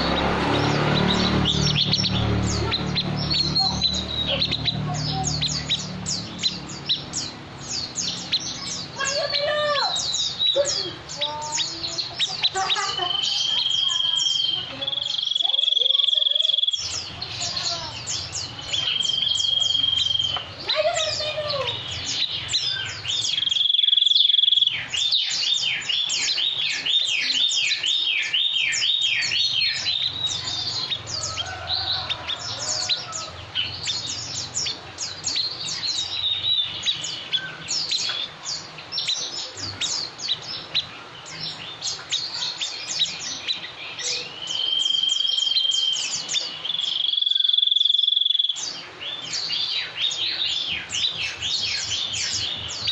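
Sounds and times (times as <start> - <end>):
high bird chirping: 0.0 - 52.9
bird whistles: 12.8 - 17.0, 18.8 - 20.4, 21.7 - 30.5, 42.6 - 48.6.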